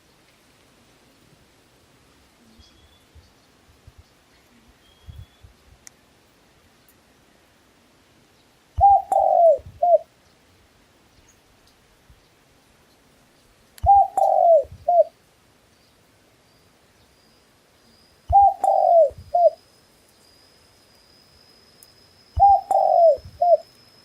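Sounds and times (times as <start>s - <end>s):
dove cooing: 8.8s - 10.1s, 13.8s - 15.2s, 18.3s - 19.6s, 22.4s - 23.7s.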